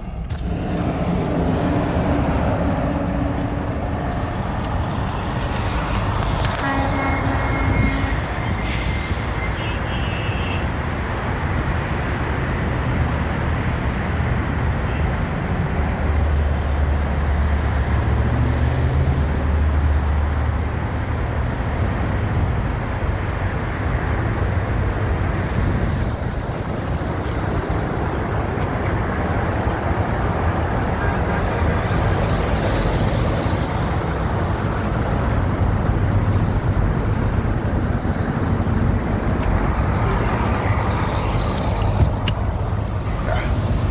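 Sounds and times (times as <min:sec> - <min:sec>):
deep engine rumble: 0:00.0 - 0:09.3, 0:24.7 - 0:43.9
truck traffic: 0:00.0 - 0:43.9.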